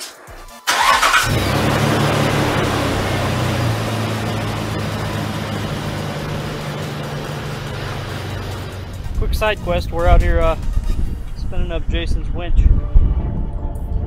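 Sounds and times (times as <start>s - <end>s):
car engine starting and idling: 0.6s - 11.4s.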